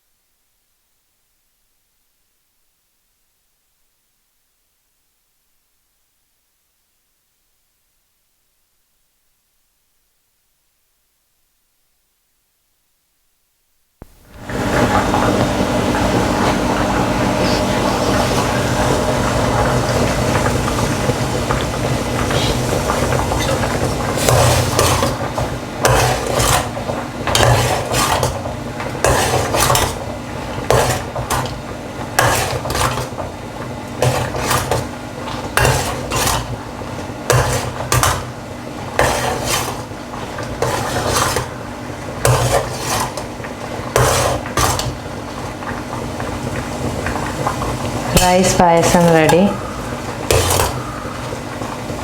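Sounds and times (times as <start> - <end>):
steady hum: 14.0 - 32.9, 47.9 - 52.0
metal spoon scraping a pot: 25.8 - 28.4, 29.0 - 30.0, 32.2 - 33.1, 35.5 - 36.6, 37.3 - 38.3, 39.0 - 39.9, 40.6 - 41.5, 42.2 - 43.3, 43.9 - 45.0, 50.2 - 51.2.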